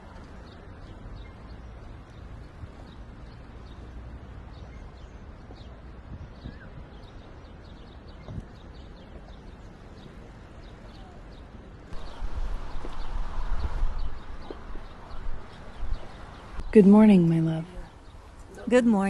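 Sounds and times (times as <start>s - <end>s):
small birds chirping: 0.0s - 19.0s
steady low rumble: 9.0s - 19.0s.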